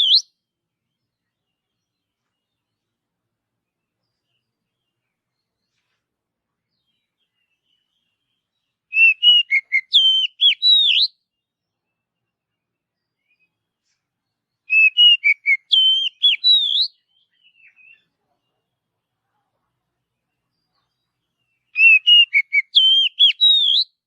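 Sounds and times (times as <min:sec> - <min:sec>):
bird singing whistled notes: 0:00.0 - 0:02.8, 0:06.7 - 0:18.2, 0:20.5 - 0:24.0.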